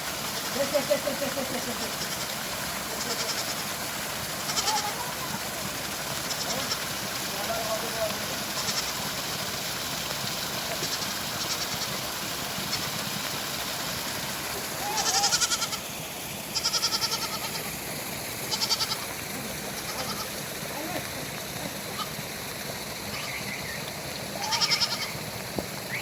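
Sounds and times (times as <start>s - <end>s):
heavy rain hissing: 0.0s - 26.0s
goats bleating: 1.7s - 3.7s, 4.4s - 5.2s, 6.3s - 6.9s, 8.5s - 9.0s, 14.8s - 15.8s, 16.6s - 17.8s, 18.5s - 19.1s, 19.7s - 20.4s, 21.9s - 22.2s, 24.4s - 25.2s.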